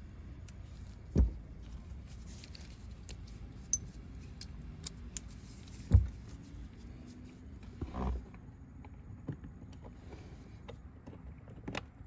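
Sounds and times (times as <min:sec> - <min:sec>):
dull thump: 0:01.1 - 0:01.5, 0:05.9 - 0:06.2.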